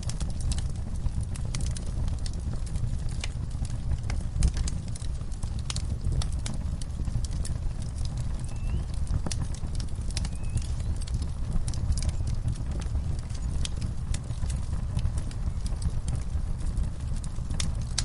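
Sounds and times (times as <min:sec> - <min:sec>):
wood fire crackling: 0:00.1 - 0:18.0.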